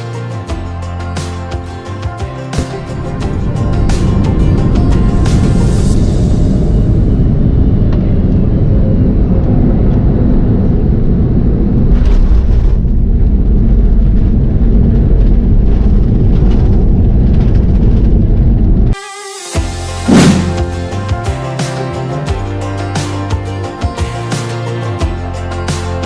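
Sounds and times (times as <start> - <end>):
airliner landing heard from cabin: 3.2 - 19.0.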